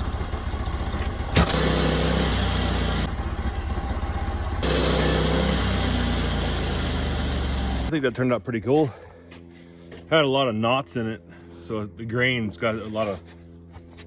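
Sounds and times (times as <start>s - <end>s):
engine puttering: 0.0s - 8.1s.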